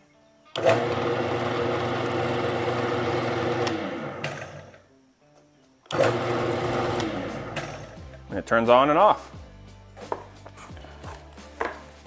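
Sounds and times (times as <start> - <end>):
drill press motor humming: 0.6 - 4.8, 5.9 - 8.0.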